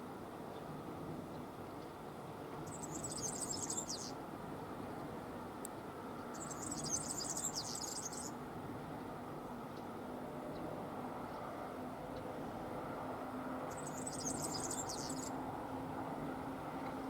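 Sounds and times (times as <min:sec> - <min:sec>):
songbird singing: 0:02.5 - 0:04.2, 0:06.2 - 0:08.4, 0:13.6 - 0:15.4.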